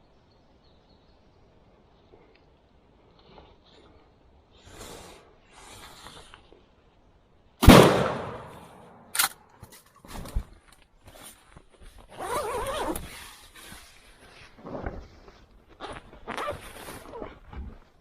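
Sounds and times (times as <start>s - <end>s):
shotgun shot with echo: 7.6s - 9.1s.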